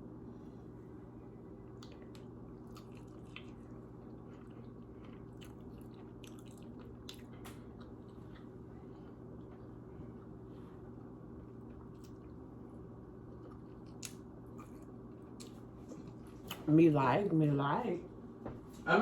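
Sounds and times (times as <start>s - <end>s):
steady low hum: 0.0s - 19.0s
person chewing crunchy food: 1.5s - 10.4s, 11.4s - 12.4s, 13.2s - 16.6s.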